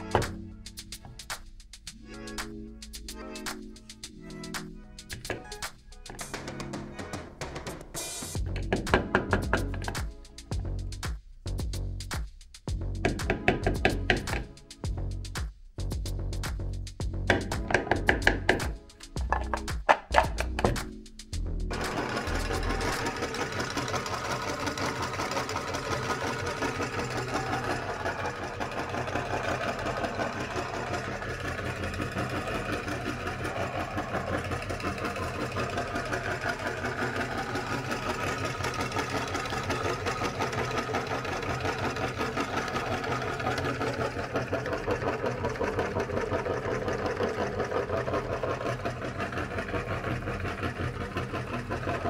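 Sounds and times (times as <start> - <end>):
electric meat grinder running: 21.7 - 52.0.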